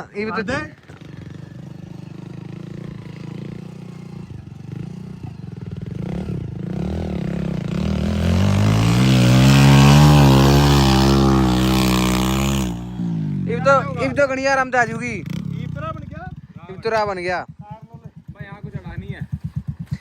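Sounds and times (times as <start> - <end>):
heavy diesel engine revving: 6.0 - 13.5.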